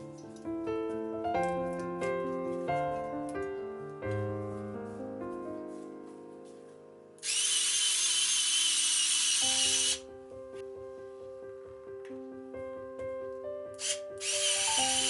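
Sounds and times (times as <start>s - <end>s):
piano background music: 0.0s - 15.0s
power tool whirring: 7.2s - 10.0s, 13.8s - 15.0s.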